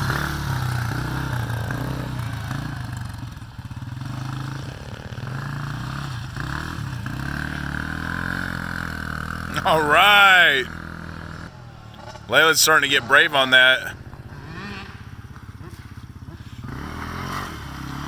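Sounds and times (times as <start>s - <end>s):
small motocross engine revving: 4.0s - 9.6s, 14.0s - 18.0s.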